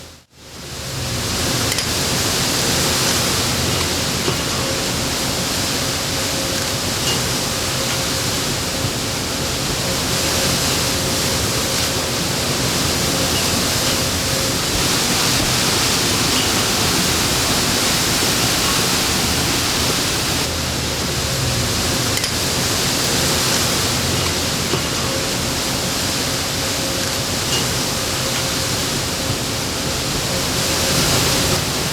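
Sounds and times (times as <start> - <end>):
strong wind rushing: 14.7 - 20.5.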